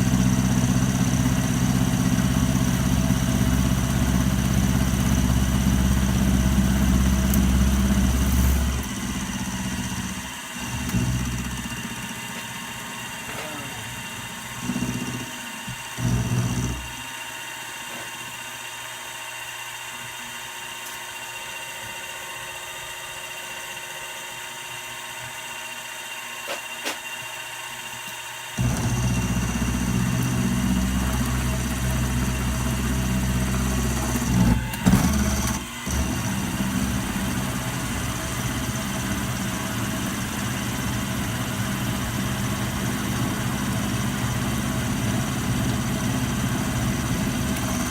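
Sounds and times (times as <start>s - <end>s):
milling machine motor whine: 0.0s - 47.9s.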